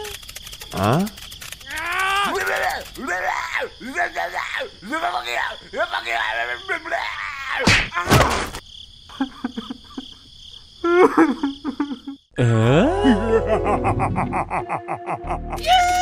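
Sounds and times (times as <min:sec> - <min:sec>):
rapid even ticking: 0:00.0 - 0:05.7
high insect-like trill: 0:00.0 - 0:07.1
squeaky gibberish cartoon voices: 0:00.0 - 0:07.7, 0:15.5 - 0:16.0.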